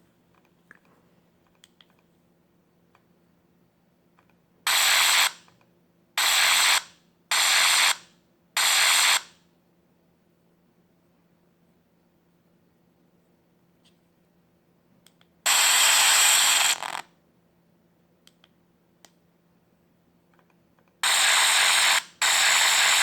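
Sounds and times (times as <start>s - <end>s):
phone harsh rasping noise: 15.5s - 17.0s, 21.0s - 23.0s.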